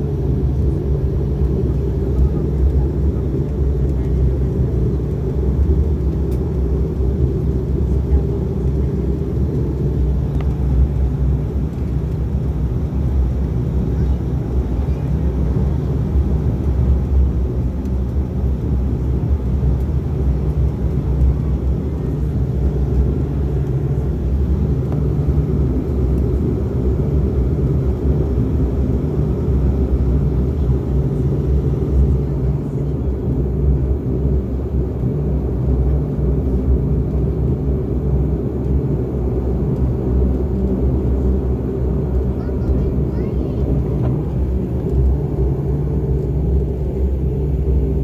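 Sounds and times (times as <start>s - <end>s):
turboprop engines droning: 0.0s - 48.0s.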